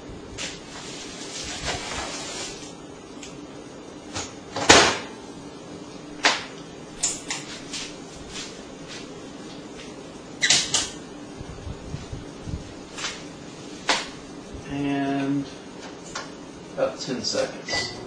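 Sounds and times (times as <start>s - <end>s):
microwave door shutting: 17.7s - 18.0s.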